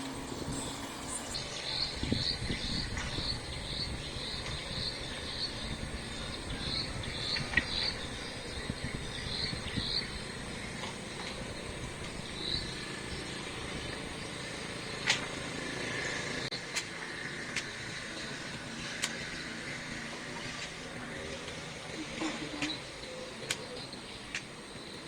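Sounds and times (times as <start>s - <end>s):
crickets chirping: 0.0s - 25.0s
low outdoor rumble: 0.0s - 25.0s.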